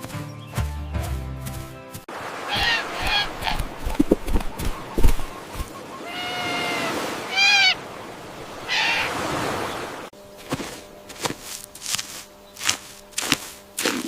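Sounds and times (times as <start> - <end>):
high-pitched animal calls: 2.4 - 7.9, 8.6 - 9.3.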